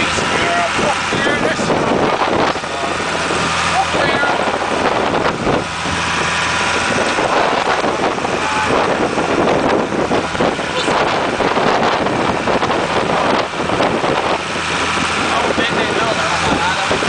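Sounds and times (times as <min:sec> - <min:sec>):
voices talking: 0:00.0 - 0:05.9, 0:08.0 - 0:09.3, 0:10.5 - 0:11.4, 0:15.2 - 0:17.0
vehicle engine drone: 0:00.0 - 0:17.0
wind on microphone: 0:00.0 - 0:17.0.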